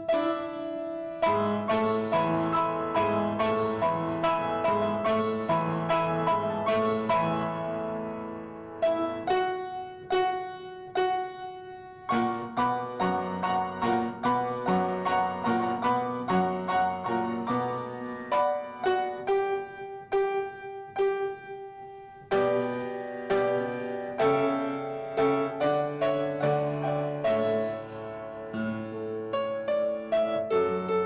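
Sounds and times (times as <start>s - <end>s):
piano playing: 0.0s - 31.0s.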